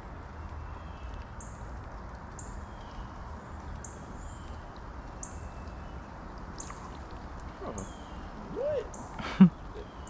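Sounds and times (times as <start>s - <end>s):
fainter lower bird calls: 2.4s - 10.0s.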